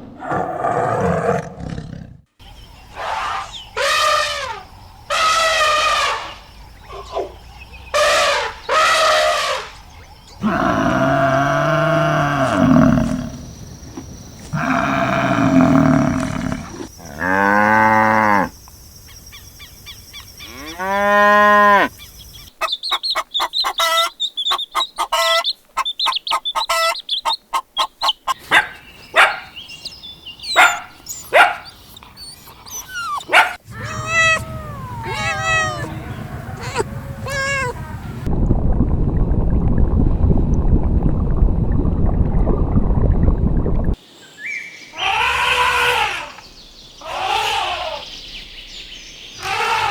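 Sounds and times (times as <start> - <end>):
long arching animal calls: 2.9 - 9.8, 14.5 - 17.5, 30.5 - 38.3, 44.9 - 46.4, 47.0 - 48.3, 49.4 - 49.9.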